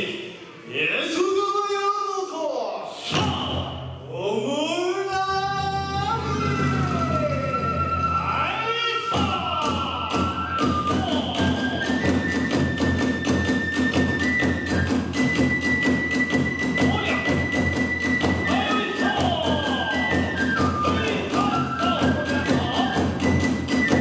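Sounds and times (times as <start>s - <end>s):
bamboo flute holding high notes: 5.1s - 24.0s
drum strokes: 5.2s - 24.0s.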